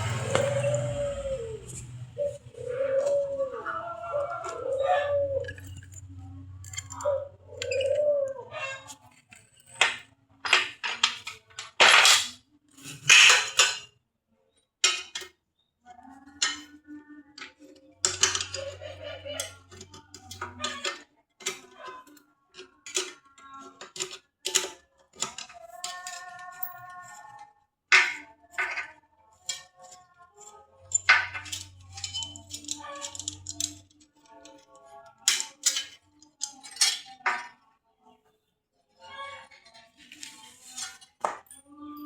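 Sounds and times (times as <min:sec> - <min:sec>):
dog whining: 0:00.1 - 0:05.9
metal parts clattering: 0:05.4 - 0:07.0, 0:08.7 - 0:13.9, 0:17.4 - 0:37.6, 0:39.2 - 0:41.6.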